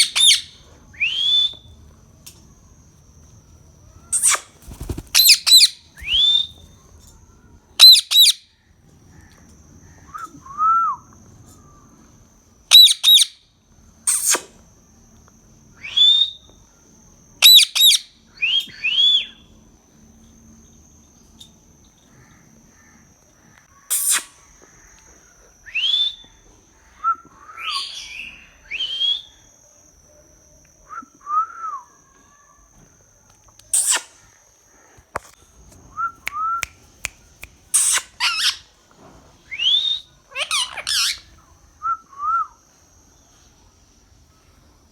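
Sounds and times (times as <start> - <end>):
parrot squawking: 37.8 - 38.6, 40.3 - 41.2.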